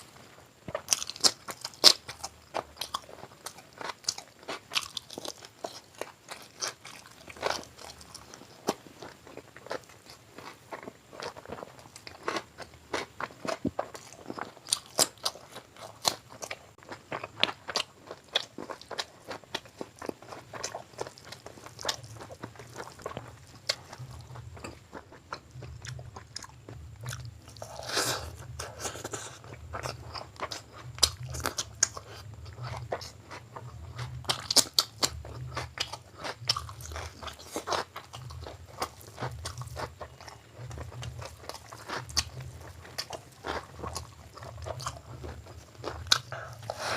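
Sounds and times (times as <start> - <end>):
low steady hum: 0.0 - 46.9
wet chewing and crunching: 0.0 - 46.9
mouth and teeth clicks: 9.6 - 46.9.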